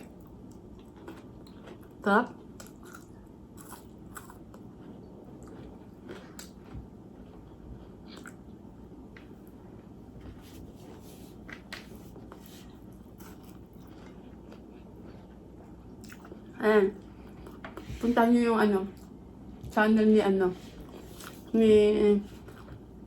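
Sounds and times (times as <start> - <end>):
person chewing food: 0.0 - 18.0
steady low hum: 0.0 - 23.0.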